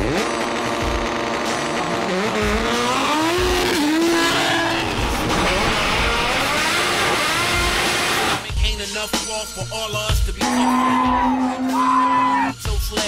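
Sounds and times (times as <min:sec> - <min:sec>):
race car engine accelerating: 0:00.0 - 0:08.4.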